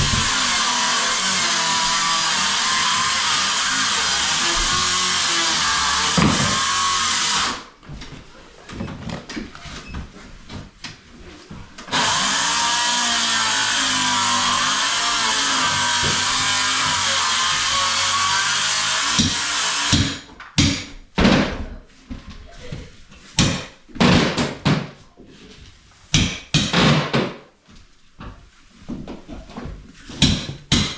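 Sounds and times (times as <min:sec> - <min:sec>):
power tool motor running: 0:00.0 - 0:07.7, 0:11.9 - 0:20.0.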